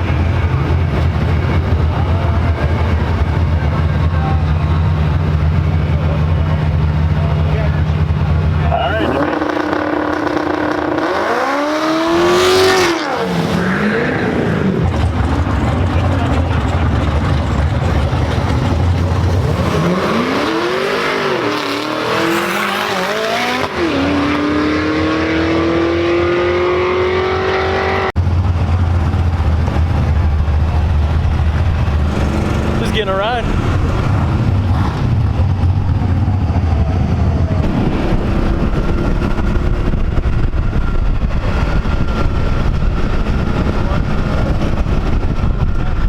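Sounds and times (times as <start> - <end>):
car engines revving: 0.0 - 46.0
low engine drone: 0.0 - 46.0.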